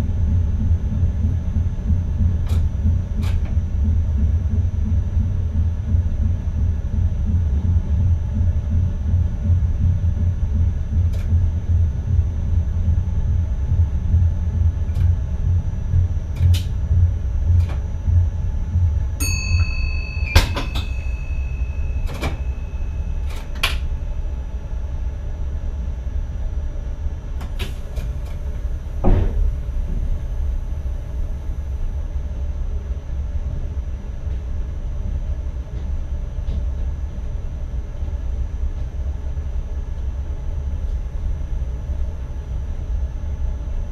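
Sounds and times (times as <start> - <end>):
train rumble with high whine: 0.0 - 43.9
warning tone: 19.2 - 24.0.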